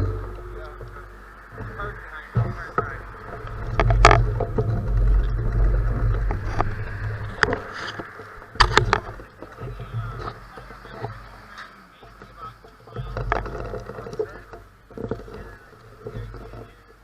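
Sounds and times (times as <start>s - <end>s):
wind rumble on microphone: 0.0s - 11.5s
bicycle tyres on gravel: 0.0s - 17.0s
sharp clicks and knocks: 0.0s - 17.0s.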